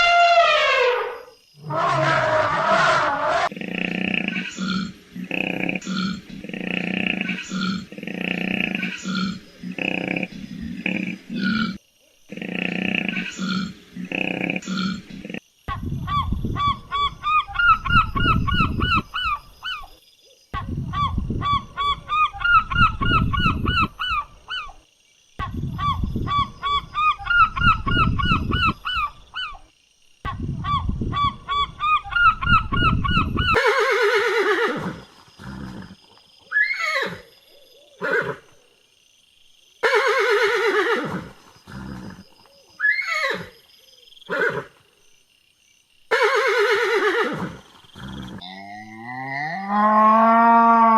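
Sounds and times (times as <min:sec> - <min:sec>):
horse whinnying: 0:33.3 - 0:35.9, 0:39.8 - 0:42.2, 0:46.1 - 0:48.4.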